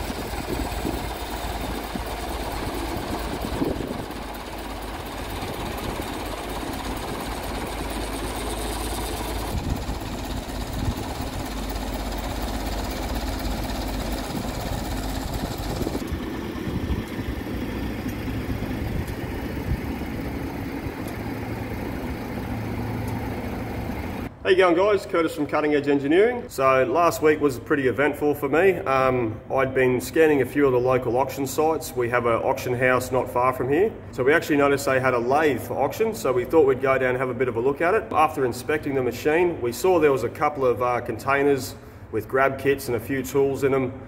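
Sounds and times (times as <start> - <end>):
engine idling: 0.0 - 24.4.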